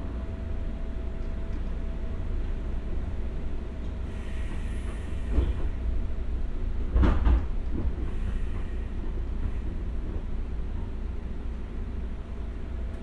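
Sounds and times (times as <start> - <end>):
train wheels rumbling on rails: 0.0 - 13.0
wheels clacking on rail joints: 6.9 - 10.2.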